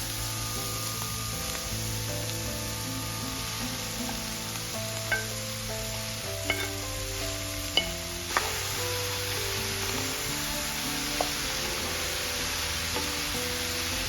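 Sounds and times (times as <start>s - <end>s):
food sizzling in a pan: 0.0s - 14.0s
utensil clinking against pan: 5.0s - 5.4s, 6.4s - 6.9s, 7.7s - 8.6s.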